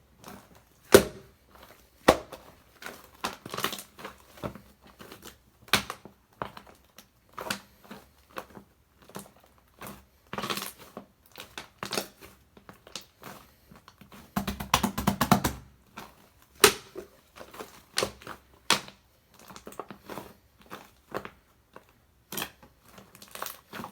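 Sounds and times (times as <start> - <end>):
slime squishing and popping: 0.9 - 1.3, 16.6 - 17.0.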